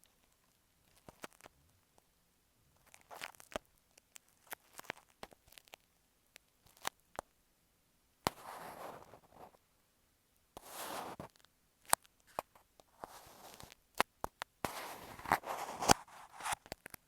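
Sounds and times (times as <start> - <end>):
scratching rubs on microphone: 8.3 - 9.6, 10.6 - 11.4, 13.0 - 13.8, 14.6 - 16.7.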